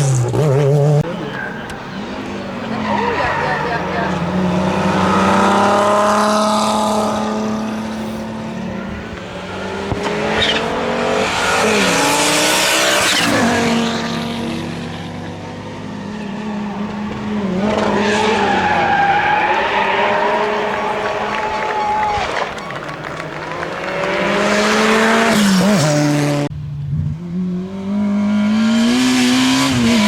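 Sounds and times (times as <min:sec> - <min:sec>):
rally car engines revving: 0:00.0 - 0:30.0.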